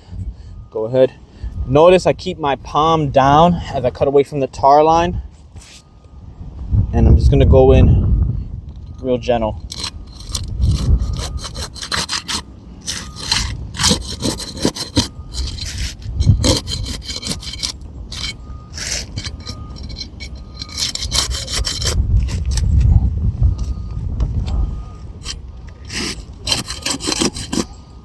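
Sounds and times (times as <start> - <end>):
crowbar scraping under shingle: 9.6 - 27.9.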